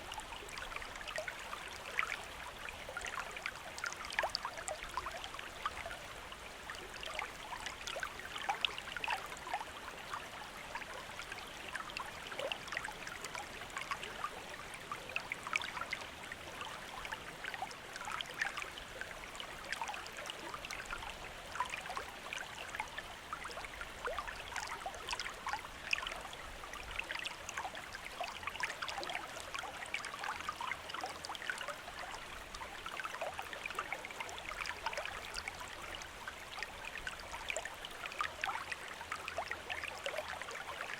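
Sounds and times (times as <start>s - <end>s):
stream babbling over stones: 0.0s - 40.9s.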